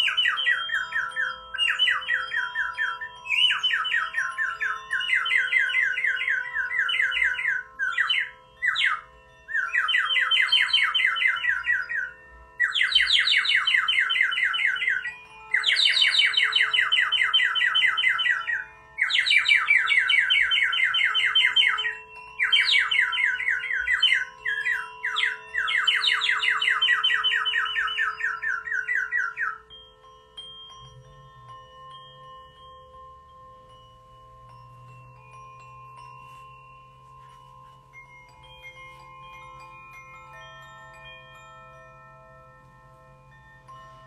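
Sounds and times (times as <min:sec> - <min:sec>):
songbird trilling: 0:00.0 - 0:29.8
singing bowl humming: 0:00.0 - 0:44.0.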